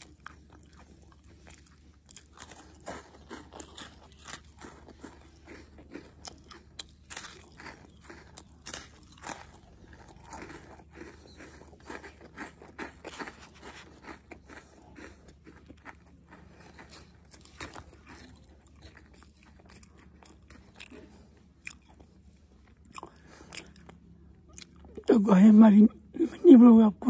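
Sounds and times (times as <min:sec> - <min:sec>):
person chewing crunchy biscuits: 0:00.0 - 0:25.1.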